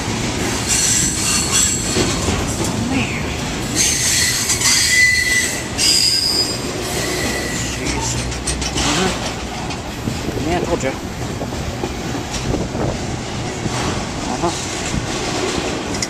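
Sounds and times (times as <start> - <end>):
freight cars rumbling: 0.0 - 16.0
wheels squealing on rail: 0.4 - 2.6, 3.6 - 9.2.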